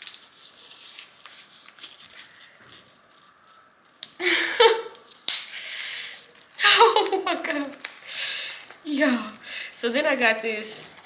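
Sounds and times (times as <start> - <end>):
fabric rustling: 0.0 - 3.6.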